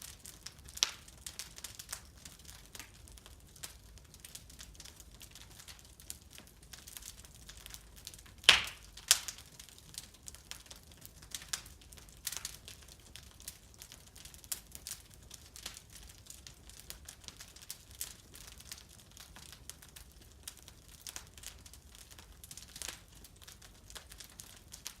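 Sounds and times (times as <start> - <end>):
wood fire crackling: 0.0 - 25.0
loud sharp pops: 8.4 - 9.3.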